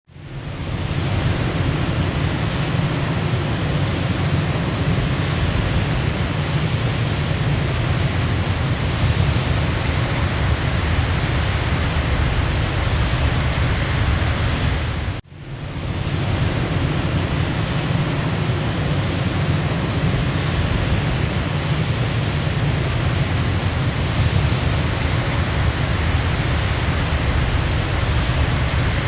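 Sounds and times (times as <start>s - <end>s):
waterfall rushing: 15.8s - 29.0s.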